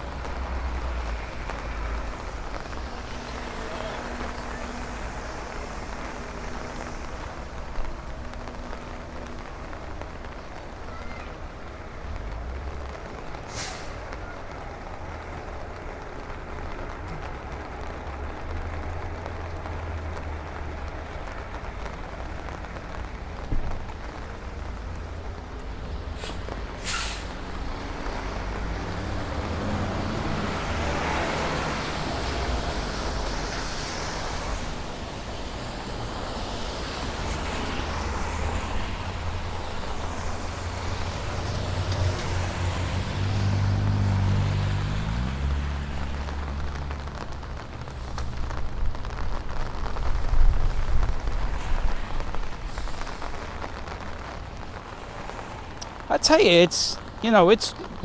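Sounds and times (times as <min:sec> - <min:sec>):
tyres hissing on wet road: 0:00.0 - 0:58.0
brief high hisses: 0:13.5 - 0:14.0, 0:26.2 - 0:27.3.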